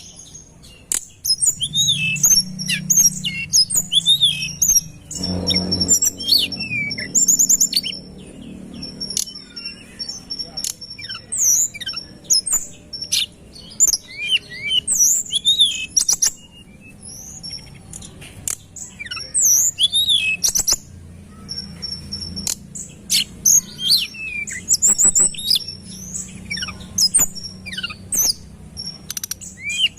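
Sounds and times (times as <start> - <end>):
sharp clicks: 0.9 - 1.2, 17.8 - 18.8
songbird whistling and trilling: 1.2 - 17.8, 18.8 - 29.9.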